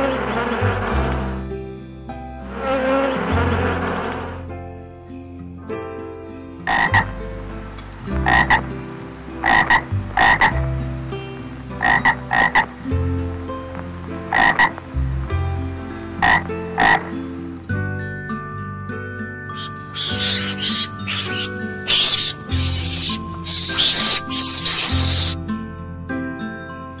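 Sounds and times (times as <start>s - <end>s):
animal croaking calls: 6.7s - 7.1s, 8.2s - 8.6s, 9.4s - 10.7s, 11.8s - 12.7s, 14.3s - 14.8s, 16.2s - 17.2s, 19.6s - 25.4s.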